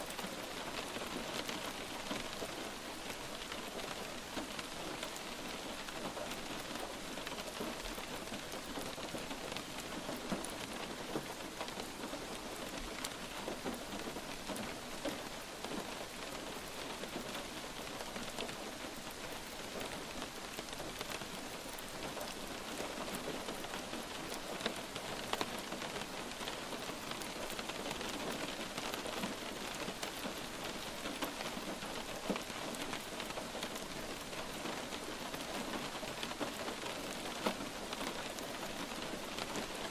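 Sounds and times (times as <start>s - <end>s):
light rain hissing: 0.0s - 39.9s.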